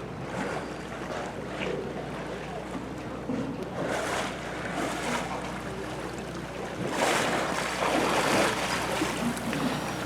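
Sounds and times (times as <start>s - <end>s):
boat motor hum: 0.0s - 10.0s
wind: 0.0s - 10.0s
water rushing: 6.5s - 10.0s.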